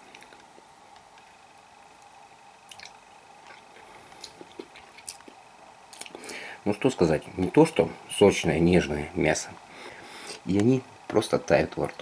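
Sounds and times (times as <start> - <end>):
wet mouth clicks: 2.7 - 3.6
person chewing: 2.7 - 6.4.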